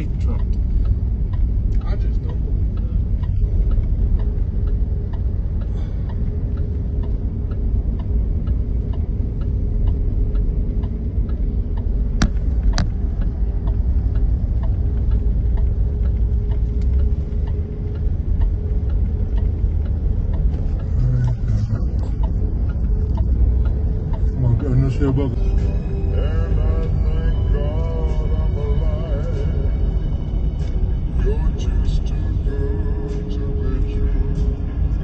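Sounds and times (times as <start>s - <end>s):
engine and tyre rumble: 0.0s - 35.0s
faint regular ticking: 0.0s - 35.0s.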